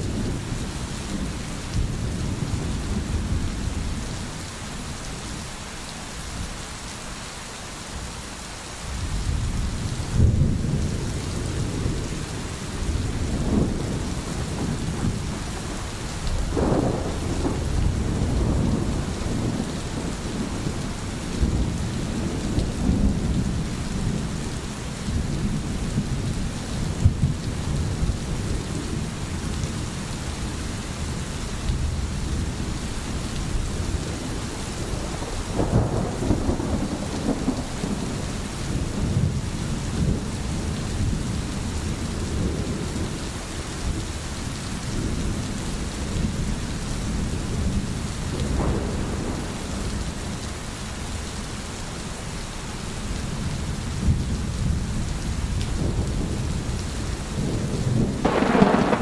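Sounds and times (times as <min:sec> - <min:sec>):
steady rain: 0:00.0 - 0:59.0
thunder rumbling: 0:09.1 - 0:43.2, 0:44.9 - 0:50.7, 0:53.5 - 0:59.0.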